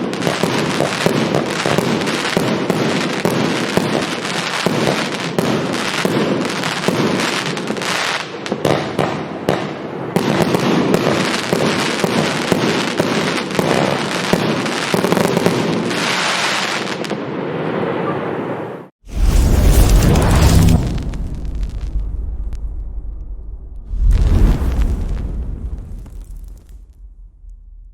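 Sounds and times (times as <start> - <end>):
fireworks shots and crackling: 0.0 - 17.7, 19.0 - 27.9.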